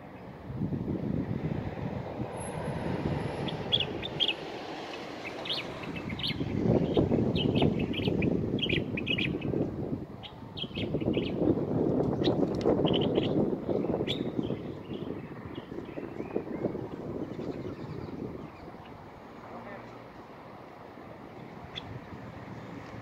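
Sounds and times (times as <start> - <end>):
wind buffeting microphone: 0.0 - 23.0
small songbird chirping: 3.4 - 9.6, 10.2 - 19.0, 21.6 - 22.8.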